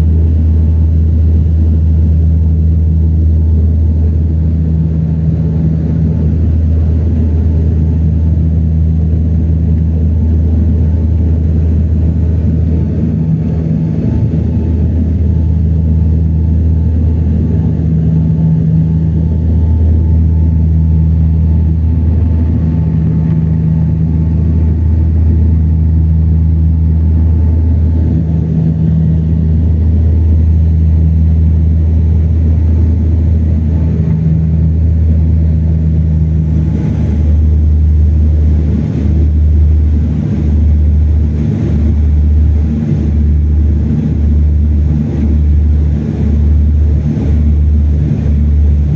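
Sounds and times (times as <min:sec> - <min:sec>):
propeller engines humming: 0:00.0 - 0:48.9.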